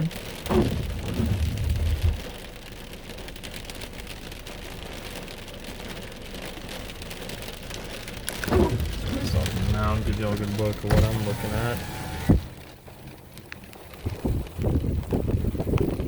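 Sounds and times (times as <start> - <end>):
rain pattering on a car: 0.0 - 16.0
low rumble: 0.4 - 2.8, 8.3 - 11.2.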